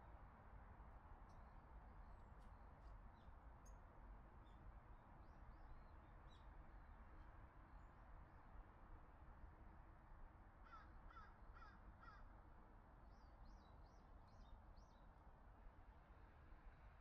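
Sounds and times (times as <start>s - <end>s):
faint crow cawing: 10.6s - 12.3s.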